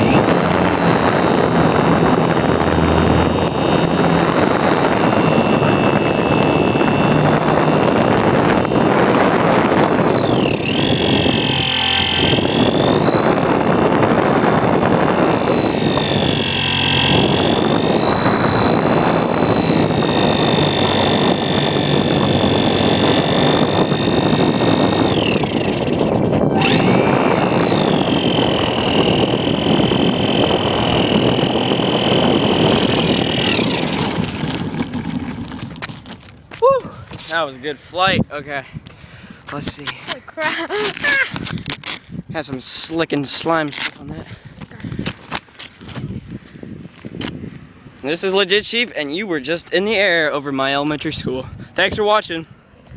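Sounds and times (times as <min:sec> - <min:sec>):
wind rush: 0:00.0 - 0:39.8, 0:44.0 - 0:48.7
motor and propeller whine: 0:00.0 - 0:42.0.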